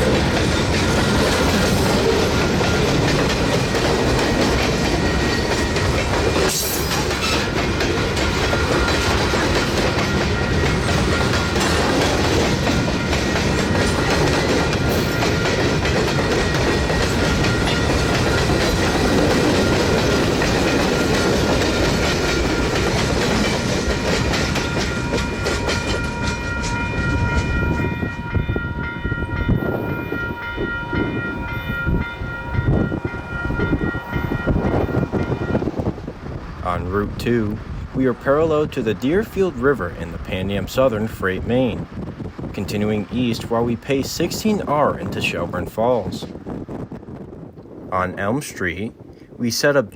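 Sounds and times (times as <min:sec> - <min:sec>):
wheels clattering over rail joints: 0:00.0 - 0:29.5
steady tones: 0:00.0 - 0:40.7
freight train rumbling: 0:00.0 - 0:49.9.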